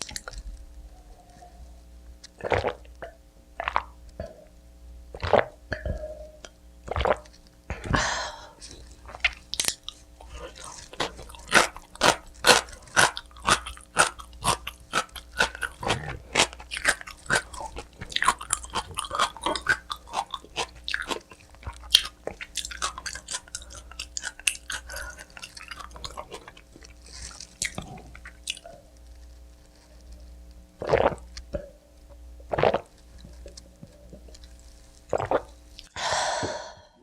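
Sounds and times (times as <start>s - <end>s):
chewing crunchy pizza: 0.0s - 0.7s, 8.6s - 31.6s.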